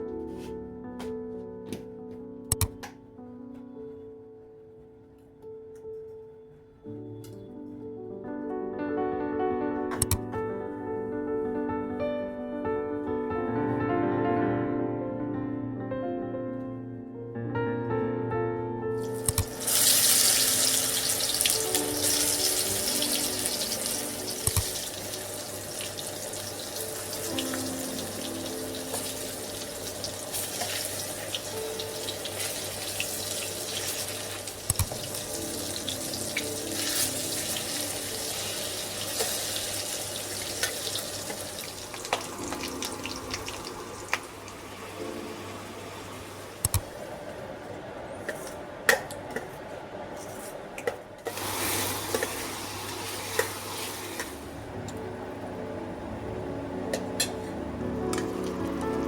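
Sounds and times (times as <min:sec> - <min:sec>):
soft background music: 0:00.0 - 0:50.5, 0:51.1 - 0:59.0
tap water running into sink: 0:19.2 - 0:44.8, 0:51.3 - 0:54.4.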